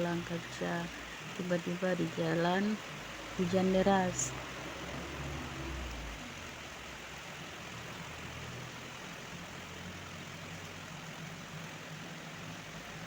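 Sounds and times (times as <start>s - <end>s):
heavy rain falling: 0.0s - 13.0s
vehicle engine humming: 0.0s - 13.0s.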